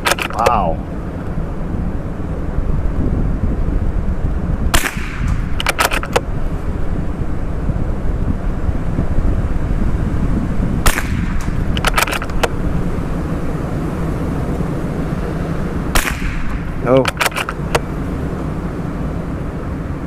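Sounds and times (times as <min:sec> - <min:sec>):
rifle shots: 0:00.0 - 0:00.4, 0:04.7 - 0:06.2, 0:10.8 - 0:12.4, 0:15.9 - 0:17.8
rifle bolt clicks: 0:00.0 - 0:00.5, 0:05.3 - 0:06.2, 0:11.4 - 0:12.5, 0:16.0 - 0:17.8
wind buffeting microphone: 0:00.0 - 0:20.0.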